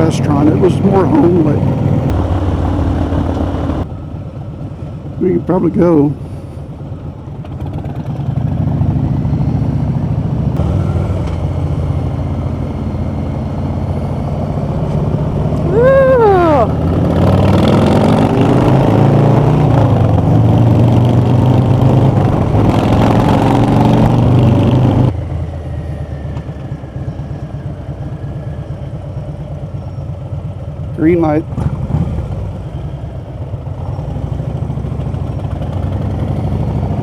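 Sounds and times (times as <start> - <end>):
motorcycle engines running: 0.0 - 37.0.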